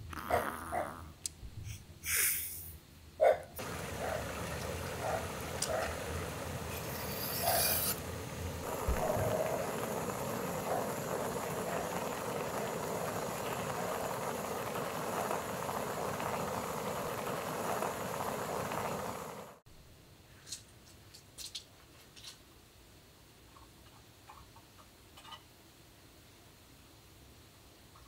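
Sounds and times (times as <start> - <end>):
food sizzling on a griddle: 3.6 - 19.6
vegetables hitting pan with sharp hiss: 5.5 - 18.6.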